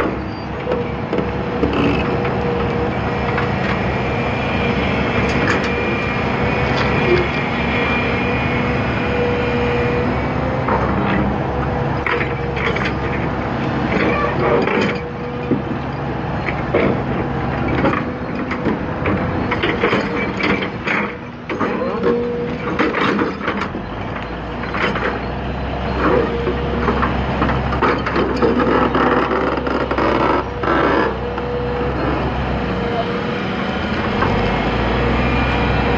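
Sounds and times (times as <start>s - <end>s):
excavator diesel engine running: 0.0s - 35.9s
steady whine: 0.0s - 35.9s
metal knocks and clanks: 16.4s - 25.3s.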